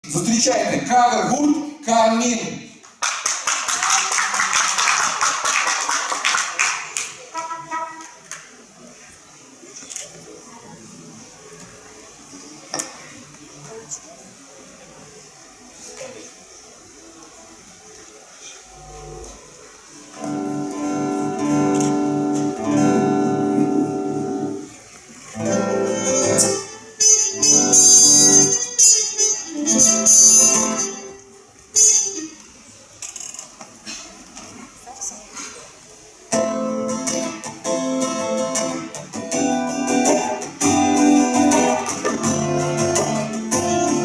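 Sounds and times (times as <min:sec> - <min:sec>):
guitar playing chords: 0:18.7 - 0:24.7, 0:25.4 - 0:31.0, 0:36.3 - 0:44.0
strummed guitar chords: 0:20.2 - 0:24.6.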